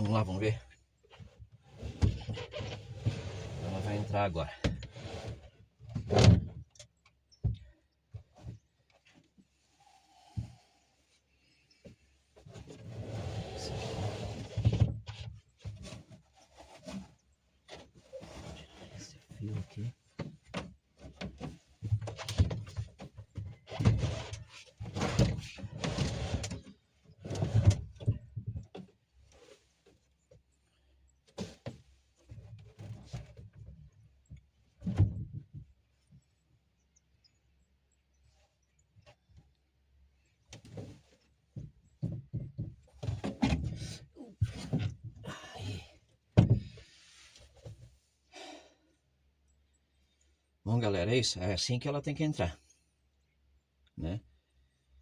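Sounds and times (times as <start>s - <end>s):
fridge scraping and bumping: 1.8s - 6.7s.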